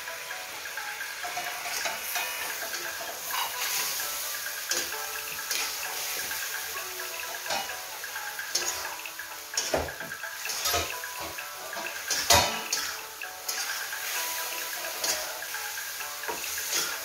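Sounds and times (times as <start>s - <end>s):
chicken sizzling in hot oil: 0.0s - 17.0s
metal spatula scraping pan: 1.2s - 6.7s, 8.5s - 9.0s, 9.6s - 17.0s.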